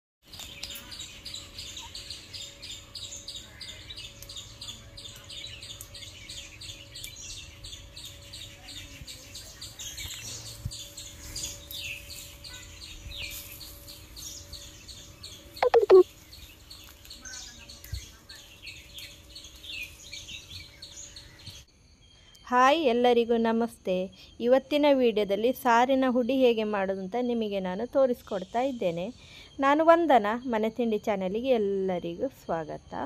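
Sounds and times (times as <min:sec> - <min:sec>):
birds chirping: 0:00.2 - 0:22.4.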